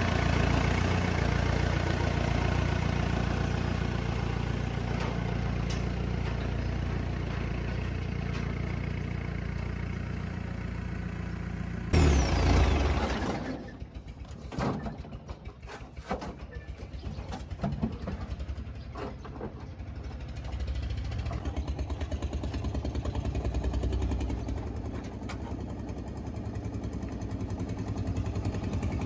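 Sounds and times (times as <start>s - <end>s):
heavy vehicle engine running: 0.0s - 29.0s
loud burst of noise: 12.0s - 13.2s.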